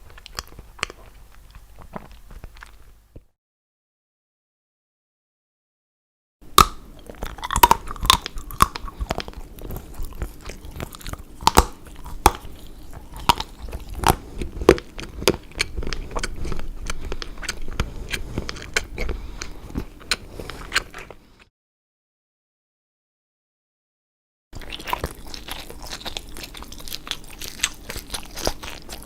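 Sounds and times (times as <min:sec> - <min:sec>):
chewing crunches and clicks: 0:00.0 - 0:03.0, 0:06.6 - 0:21.5, 0:24.6 - 0:29.0
chocolate snapping: 0:06.5 - 0:21.0.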